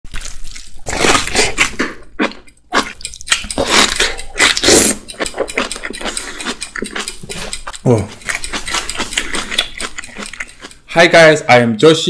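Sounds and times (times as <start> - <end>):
biting and tearing leaves: 0.1 - 5.0
wet chewing: 0.1 - 10.9.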